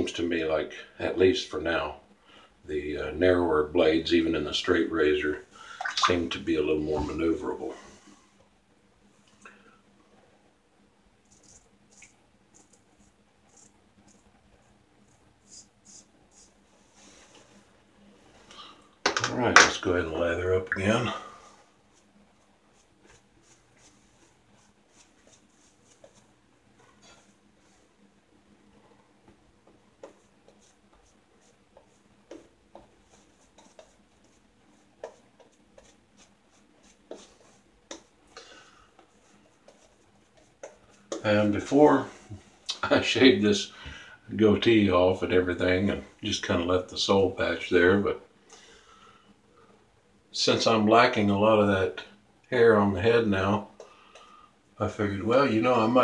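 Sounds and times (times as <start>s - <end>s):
shaving brush scrubbing lather: 11.2s - 14.3s, 15.0s - 17.2s, 21.9s - 26.3s, 30.0s - 38.2s.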